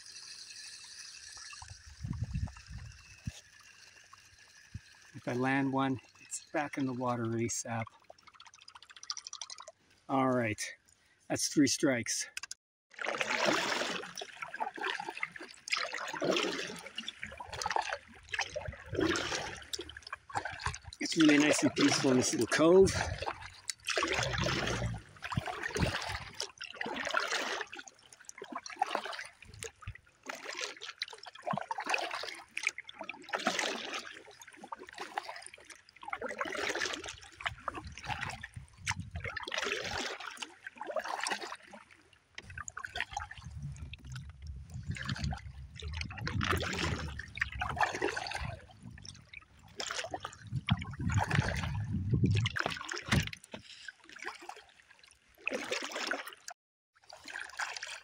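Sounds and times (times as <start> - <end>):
paddle strokes in water: 1.2 - 10.0, 12.9 - 58.0
low rumble: 43.2 - 49.1, 50.3 - 52.6.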